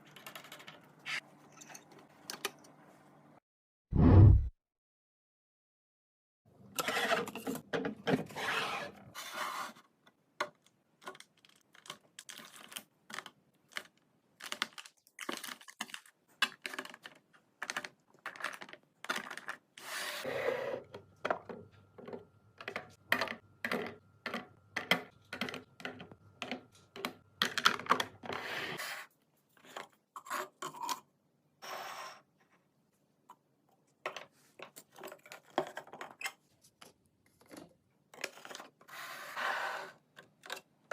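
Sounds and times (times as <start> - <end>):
food containers clicking and knocking: 10.4 - 19.7, 20.8 - 28.4, 34.0 - 36.2.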